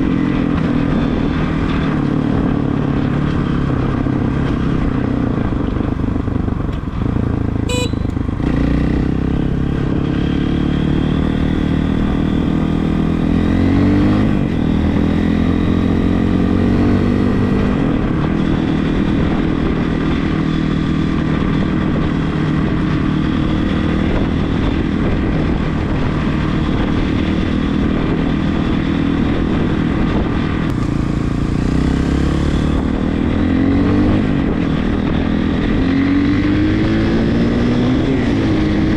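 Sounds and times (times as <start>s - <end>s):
motorcycle engine revving: 0.0s - 38.9s
brief high beep: 7.7s - 8.2s.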